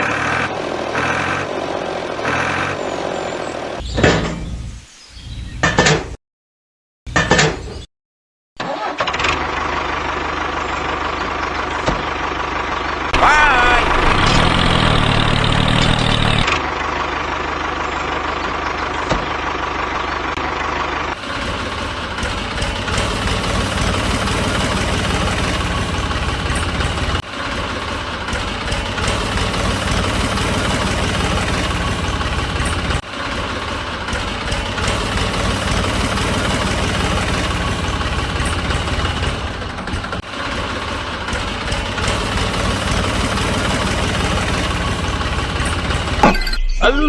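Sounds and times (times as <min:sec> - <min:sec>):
engine idling with low rattle: 0:08.8 - 0:46.3.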